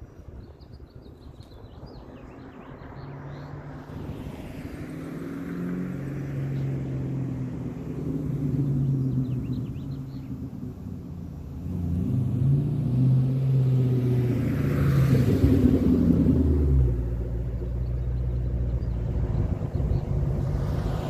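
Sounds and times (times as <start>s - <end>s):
birds chirping faintly: 5.6s - 12.6s, 16.2s - 21.0s
car engine low exhaust note: 6.0s - 21.0s.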